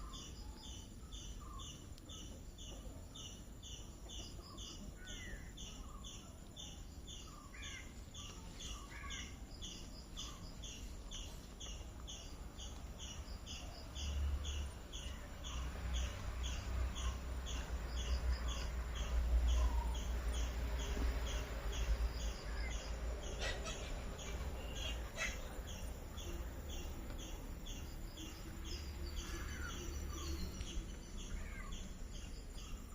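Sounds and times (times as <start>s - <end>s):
bird calls: 0.0s - 32.9s.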